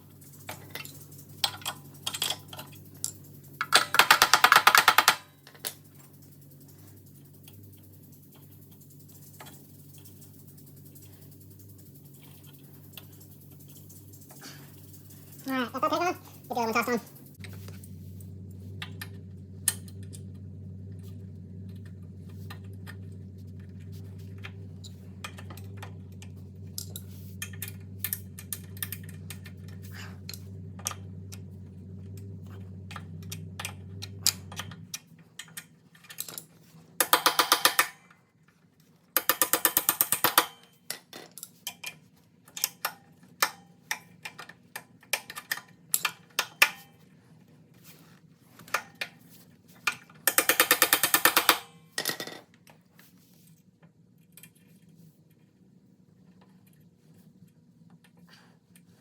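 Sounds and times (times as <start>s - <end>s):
ratchet wrench clicking: 0.0s - 15.5s, 32.9s - 38.0s, 39.2s - 40.7s, 50.3s - 51.7s
metal tools clinking: 0.0s - 20.8s, 21.7s - 38.2s
steady low hum: 0.0s - 40.7s.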